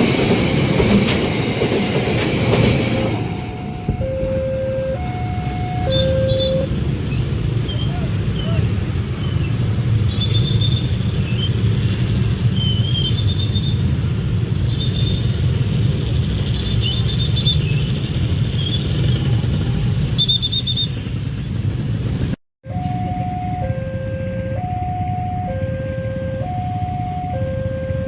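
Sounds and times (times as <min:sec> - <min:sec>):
train wheels rumbling on rail: 0:00.0 - 0:04.4, 0:05.0 - 0:14.6, 0:15.2 - 0:20.2
short high-pitched tones: 0:03.3 - 0:06.7, 0:22.7 - 0:28.0
electronic two-note tone: 0:03.4 - 0:06.7, 0:22.7 - 0:28.0.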